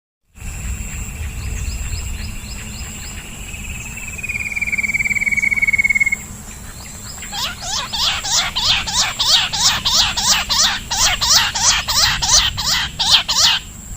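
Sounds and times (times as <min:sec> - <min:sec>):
steady high whine: 0:00.3 - 0:13.9
low rumble: 0:00.4 - 0:07.3
animal rapid trill: 0:07.2 - 0:13.7.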